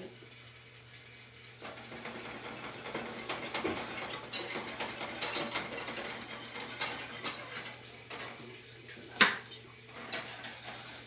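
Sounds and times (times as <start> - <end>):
utensil stirring and scraping saucepan: 1.6 - 9.2, 9.9 - 11.0.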